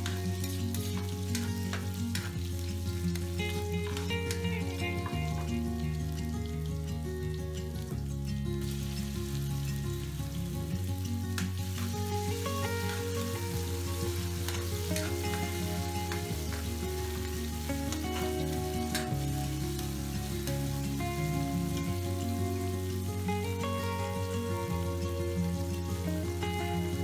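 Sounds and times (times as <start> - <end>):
metal spatula scraping wok: 0.0 - 2.8
aromatics sizzling in hot oil: 0.0 - 27.0
background music: 0.0 - 27.0.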